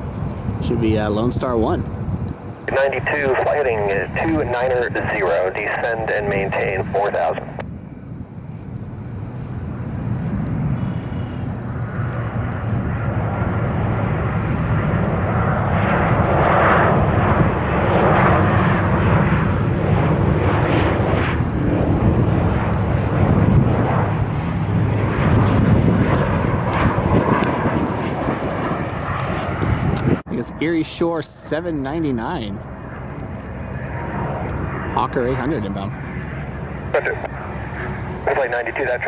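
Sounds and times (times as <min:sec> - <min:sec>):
jet engines roaring: 0:00.0 - 0:39.0.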